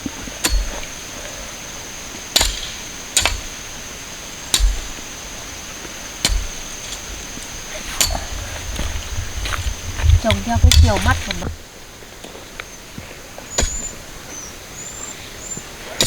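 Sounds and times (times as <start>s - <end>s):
blade chopping sugar cane: 2.4s - 3.6s, 4.5s - 5.0s, 13.6s - 13.9s.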